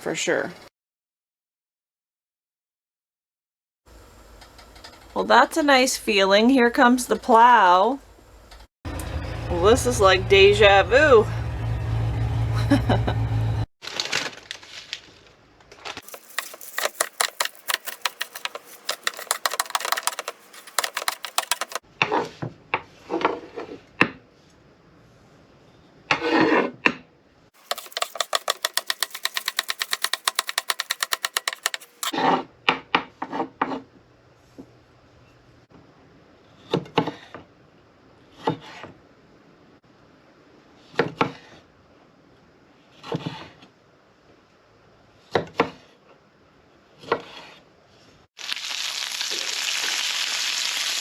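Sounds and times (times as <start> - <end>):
knocks and clatters: 16.0 - 21.8, 27.6 - 32.1
rapid clicking: 16.0 - 21.8, 27.6 - 32.1.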